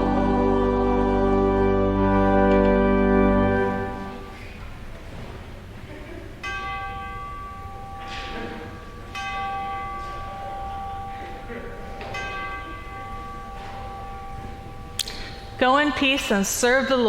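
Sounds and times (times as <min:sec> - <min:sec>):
choir singing held chord: 0:00.0 - 0:04.3
bell ringing: 0:06.4 - 0:15.9.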